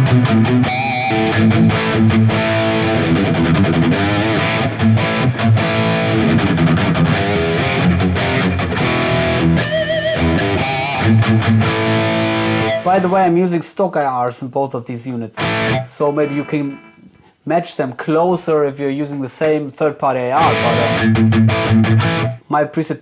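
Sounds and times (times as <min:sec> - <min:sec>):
distorted electric guitar riff: 0:00.0 - 0:13.1, 0:15.4 - 0:17.2, 0:20.4 - 0:22.5.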